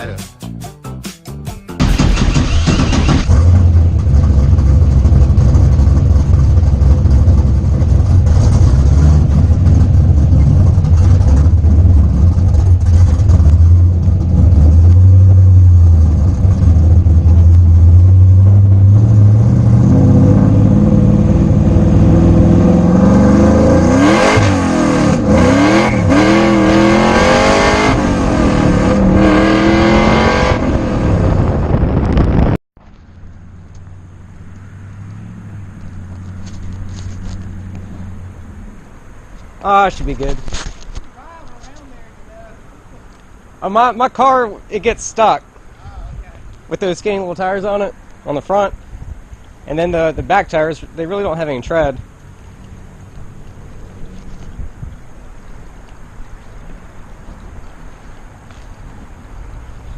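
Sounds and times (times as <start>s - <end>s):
car engine revving: 1.8s - 32.4s.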